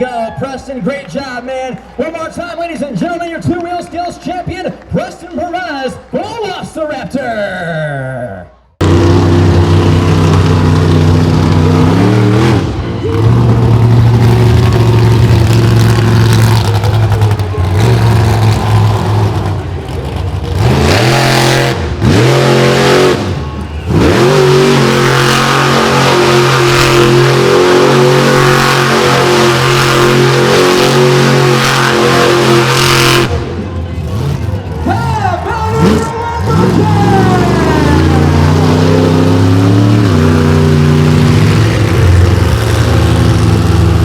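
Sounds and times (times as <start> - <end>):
monster truck engine revving: 8.8 - 44.0.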